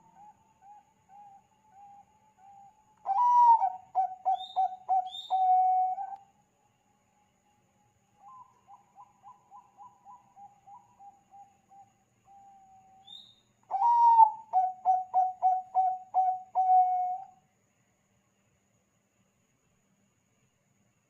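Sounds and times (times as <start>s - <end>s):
dove cooing: 0.0s - 6.2s, 13.7s - 17.3s.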